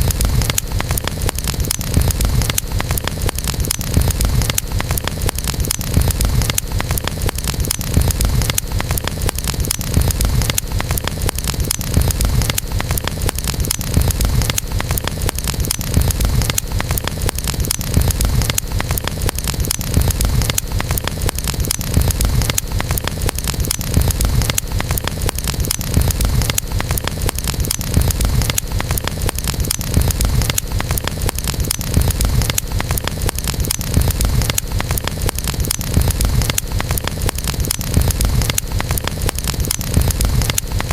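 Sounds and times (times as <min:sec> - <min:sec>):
campfire rumbling and crackling: 0:00.0 - 0:40.9.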